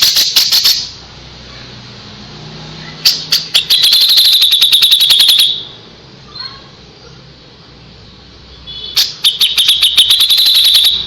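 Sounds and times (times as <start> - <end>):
bird singing sharp high notes: 3.0 - 5.8, 8.8 - 11.0
held high whistle: 3.1 - 5.7, 8.9 - 11.0.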